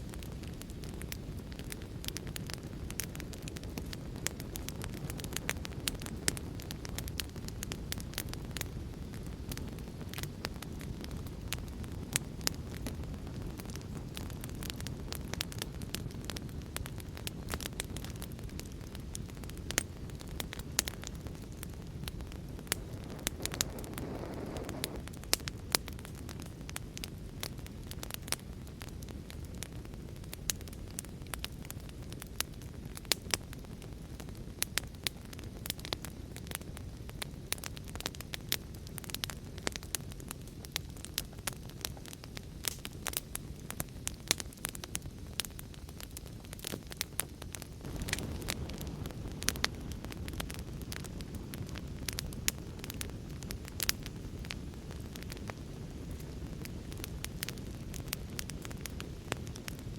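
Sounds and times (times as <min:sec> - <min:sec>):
wood fire crackling: 0:00.0 - 0:59.9
storm and rain rumble: 0:20.8 - 0:25.4
low rushing noise: 0:22.7 - 0:25.0.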